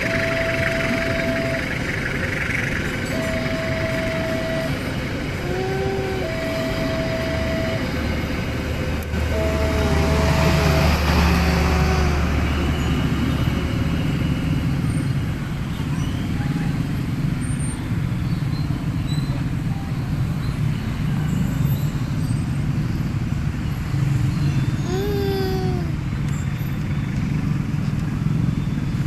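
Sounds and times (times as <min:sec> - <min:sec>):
warning tone long beeps: 0:00.0 - 0:02.1, 0:03.1 - 0:08.0
train rumbling past: 0:00.0 - 0:29.0.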